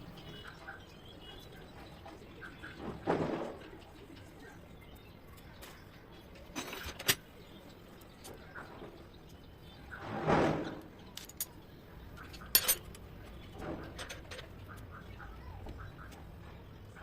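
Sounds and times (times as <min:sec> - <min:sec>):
metal tools clinking on metal: 0:06.5 - 0:07.3, 0:11.0 - 0:14.5.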